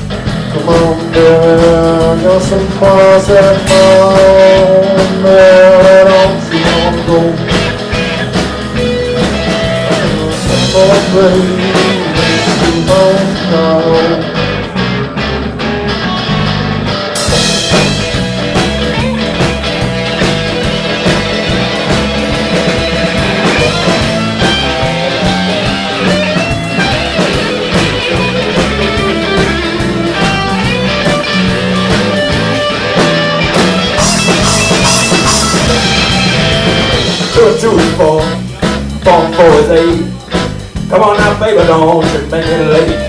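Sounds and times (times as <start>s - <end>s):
bass line: 0.0s - 43.0s
blues band playing: 0.0s - 43.0s
electric guitar: 0.0s - 43.0s.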